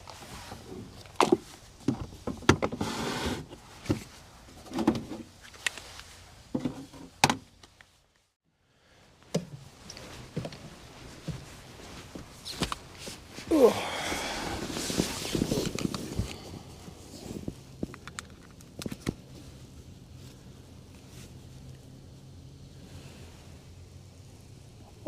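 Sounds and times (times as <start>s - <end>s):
rustling: 2.8s - 8.4s, 9.6s - 23.7s.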